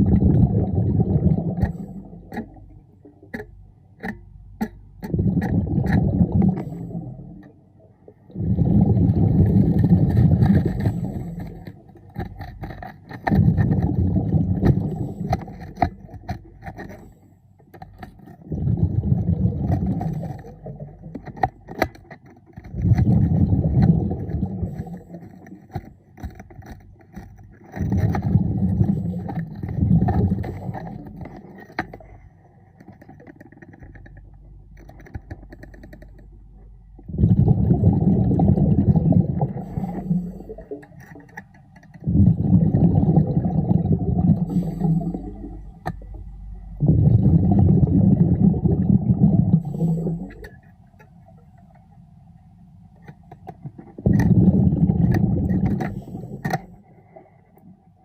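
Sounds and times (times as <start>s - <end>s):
diver's exhaled bubbles rumbling: 0.0s - 3.3s, 4.9s - 16.7s, 18.4s - 21.7s, 22.6s - 25.7s, 27.7s - 32.2s, 36.8s - 41.0s, 42.0s - 50.8s, 53.5s - 57.3s
sharp clicks underwater: 0.0s - 58.0s.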